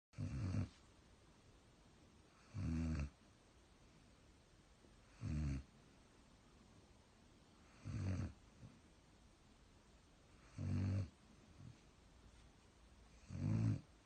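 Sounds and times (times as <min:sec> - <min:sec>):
dog snoring: 0:00.2 - 0:00.8, 0:02.3 - 0:03.2, 0:05.1 - 0:05.7, 0:07.6 - 0:08.7, 0:10.3 - 0:11.7, 0:13.1 - 0:14.0.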